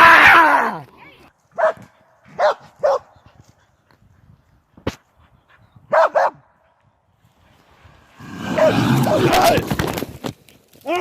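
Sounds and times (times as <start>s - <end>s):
dog barking: 1.6s - 3.1s, 5.9s - 6.4s.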